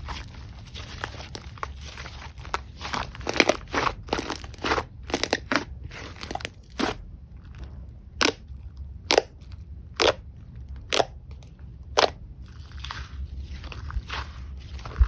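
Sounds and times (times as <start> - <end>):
slime crackling and squishing: 0.0 - 15.0
slime popping: 8.2 - 8.4, 10.0 - 10.2.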